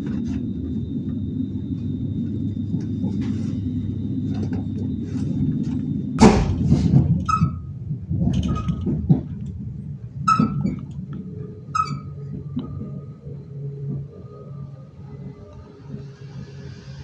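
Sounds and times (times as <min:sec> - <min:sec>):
train rumbling: 0:00.0 - 0:17.0
loud sudden bang: 0:06.2 - 0:07.1
rattles: 0:06.2 - 0:07.4.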